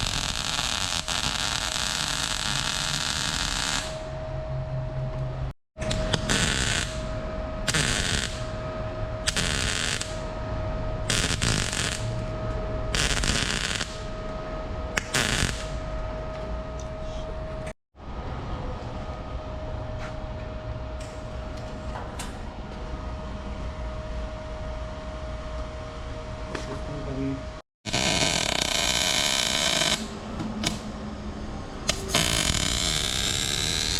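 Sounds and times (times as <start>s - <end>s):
welding crackling hiss: 0.0s - 4.1s, 5.8s - 7.1s, 7.7s - 8.6s, 9.3s - 10.3s, 11.1s - 12.2s, 13.0s - 14.2s, 15.0s - 15.9s, 27.9s - 30.8s, 31.9s - 33.9s
steady hum: 0.0s - 33.9s.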